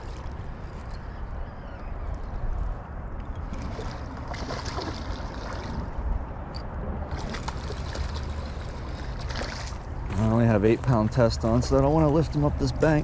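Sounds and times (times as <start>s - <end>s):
creek water rushing and splashing: 3.5s - 6.1s, 7.0s - 13.0s.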